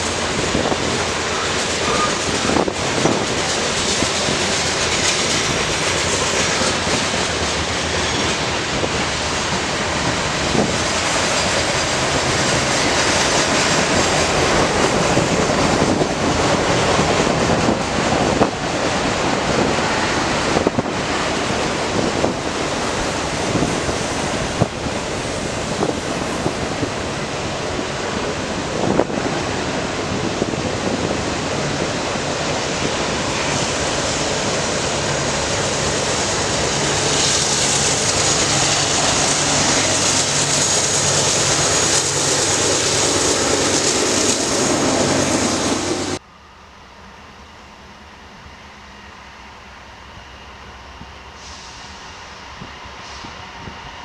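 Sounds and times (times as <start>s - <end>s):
freight train wheels on rail: 0.0s - 54.0s.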